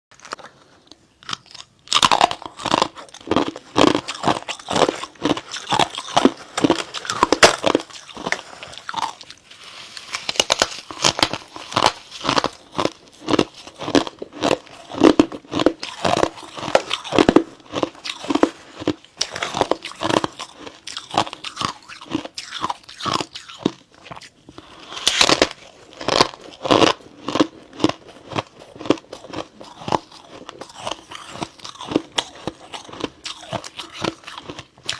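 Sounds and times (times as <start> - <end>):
person chewing crunchy ice: 0.2 - 34.9.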